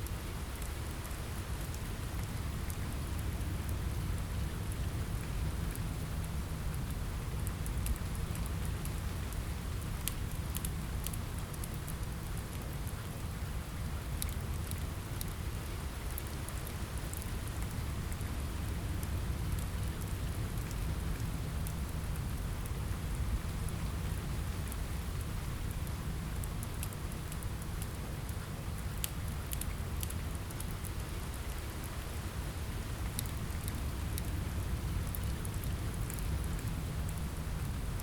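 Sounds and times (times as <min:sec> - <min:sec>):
steady rain: 0:00.0 - 0:38.0.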